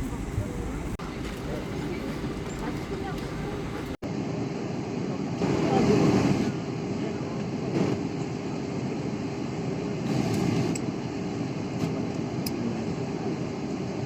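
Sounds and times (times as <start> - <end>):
airliner cabin hum: 0.0 - 4.0.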